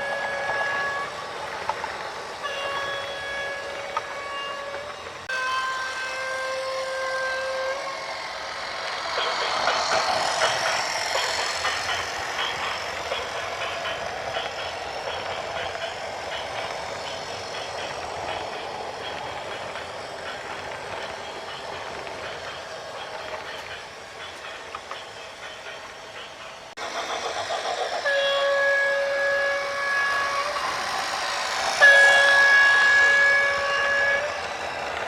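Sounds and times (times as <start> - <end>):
vehicle horn blowing: 31.8 - 34.3.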